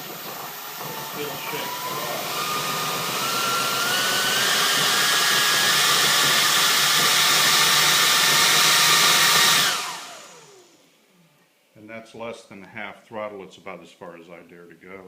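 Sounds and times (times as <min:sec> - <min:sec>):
electric motor whine: 0:00.0 - 0:10.9.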